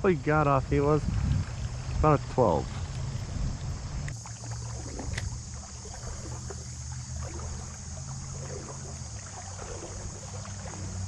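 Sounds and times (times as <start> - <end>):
wind on microphone: 0.0 - 4.2
rumble of moving water: 0.0 - 11.0
small ticks and splashes: 0.1 - 11.0.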